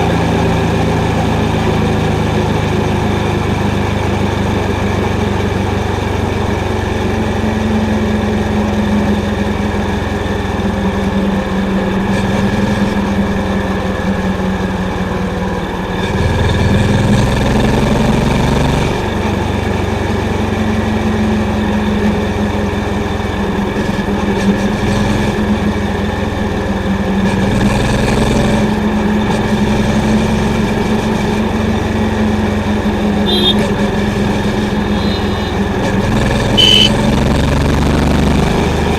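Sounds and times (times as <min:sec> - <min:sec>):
motorcycle engine thumping: 0:32.8 - 0:37.0.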